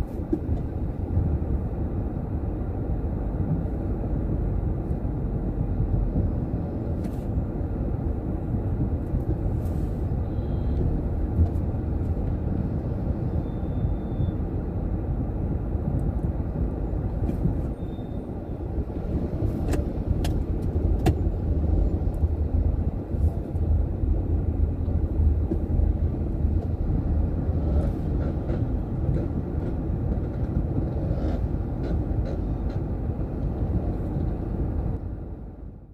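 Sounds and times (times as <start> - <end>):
road and engine rumble: 0.0 - 35.9.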